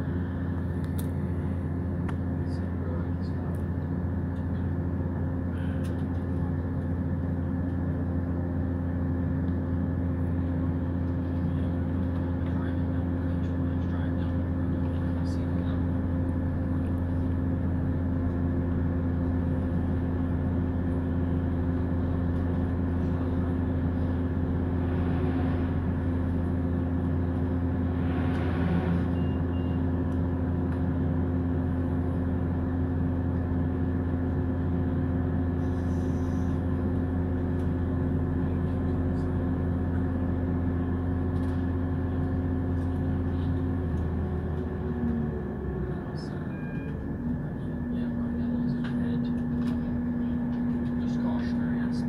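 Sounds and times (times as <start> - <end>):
diesel train engine drone: 0.0 - 52.0
rushing noise: 24.4 - 30.0.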